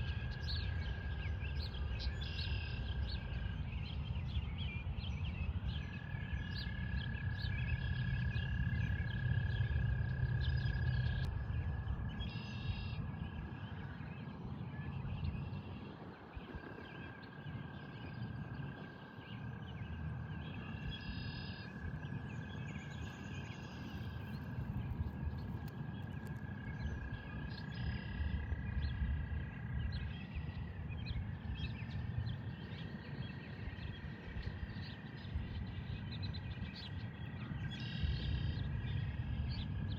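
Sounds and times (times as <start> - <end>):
frogs trilling: 0.0 - 39.9
bird chirps: 19.3 - 26.2.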